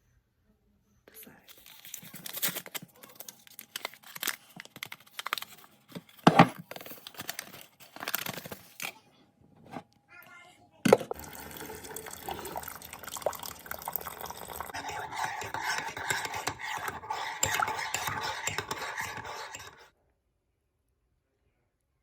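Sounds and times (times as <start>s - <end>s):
spoon clinking in a mug: 11.1s - 19.9s.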